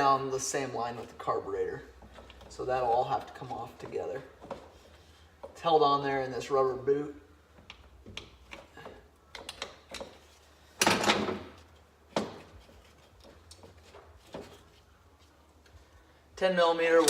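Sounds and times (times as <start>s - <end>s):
tools and metal parts clicking: 7.6s - 11.3s.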